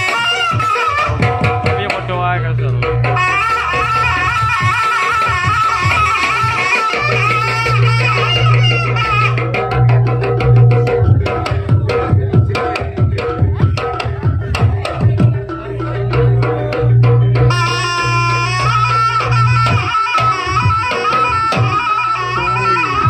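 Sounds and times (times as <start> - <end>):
hand drums played quickly: 0.0 - 23.0
wavering melodic line: 1.6 - 12.4.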